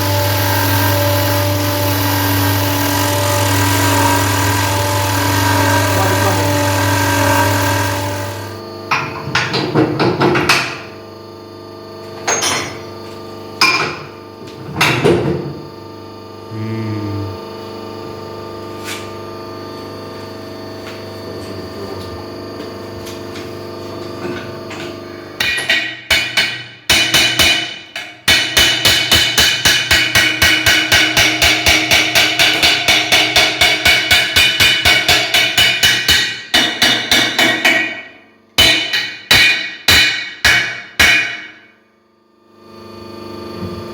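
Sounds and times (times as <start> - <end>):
hammer striking metal: 25.4 - 41.7.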